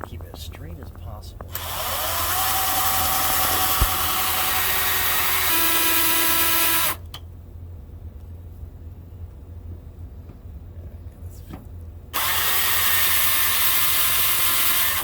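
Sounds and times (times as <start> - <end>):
power drill boring through steel: 1.5 - 7.0, 12.2 - 15.0.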